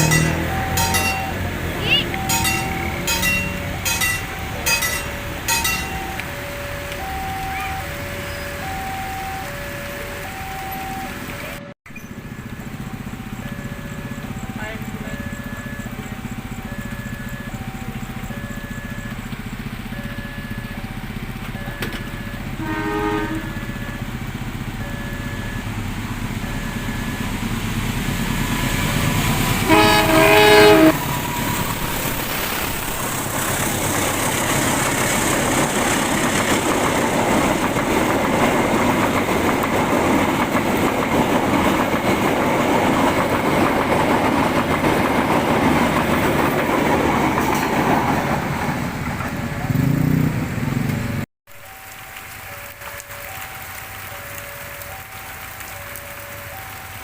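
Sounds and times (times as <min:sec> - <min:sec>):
locomotive horn: 0:00.0 - 0:11.7, 0:21.0 - 0:24.2, 0:29.4 - 0:31.7
railway crossing signal ringing: 0:00.0 - 0:50.2, 0:51.5 - 0:57.0
train wheels rumbling on rails: 0:00.0 - 0:51.2.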